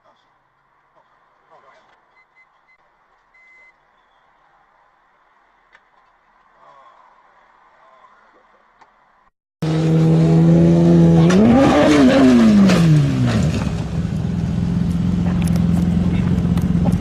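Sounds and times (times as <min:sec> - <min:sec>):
loud vehicle engine revving: 0:09.6 - 0:17.0.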